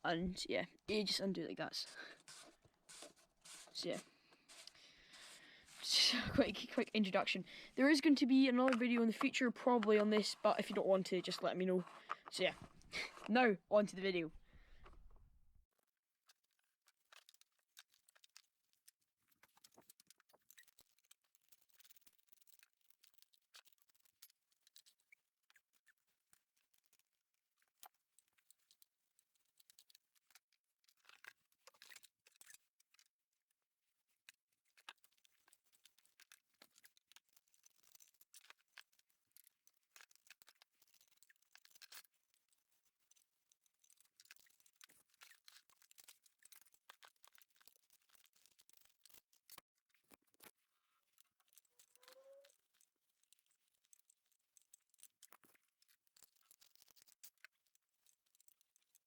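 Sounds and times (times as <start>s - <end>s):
rustling: 0.6s - 13.5s.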